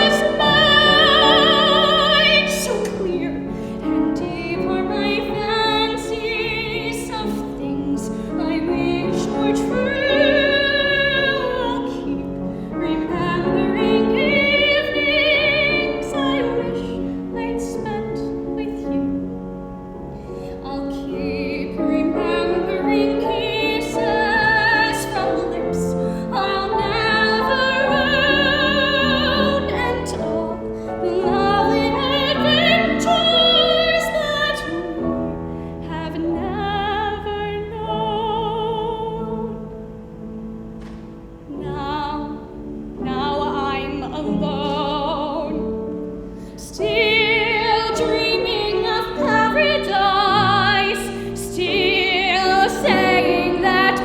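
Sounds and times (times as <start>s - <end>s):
person singing ballad with vibrato: 0.0s - 19.1s
piano accompaniment: 0.0s - 54.0s.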